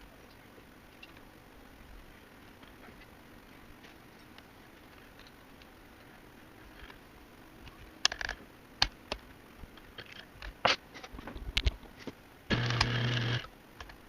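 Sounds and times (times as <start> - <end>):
electric motor humming: 12.5 - 13.5.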